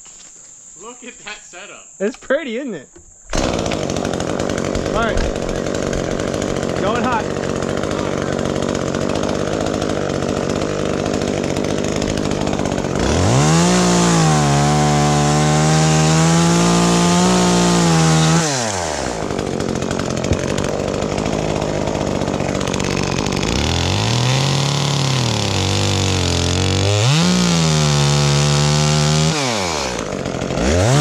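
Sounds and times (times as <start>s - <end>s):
chainsaw idling and revving: 3.3s - 31.0s.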